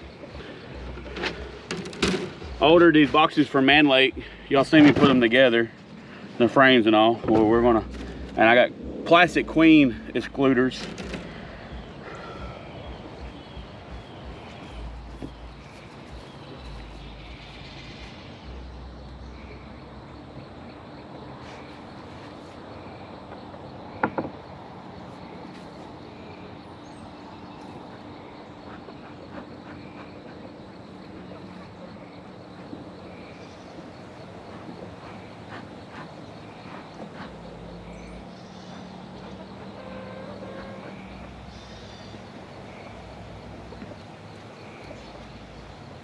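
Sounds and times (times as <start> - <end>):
honeybees humming: 0.0 - 46.0
hive equipment clicks and knocks: 0.9 - 2.5, 10.8 - 11.4.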